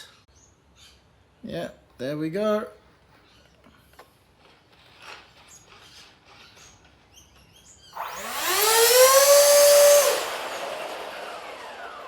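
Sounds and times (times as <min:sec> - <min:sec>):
electric ducted fan whine: 0:08.0 - 0:12.0.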